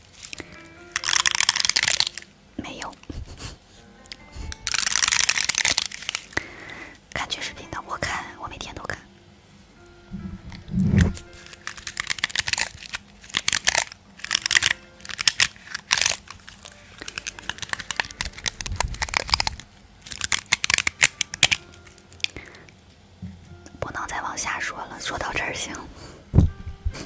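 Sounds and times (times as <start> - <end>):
crinkling and tearing: 0.0 - 3.2, 4.1 - 6.5, 10.5 - 22.8
faint background music: 0.0 - 27.0
low thumps: 10.1 - 11.3.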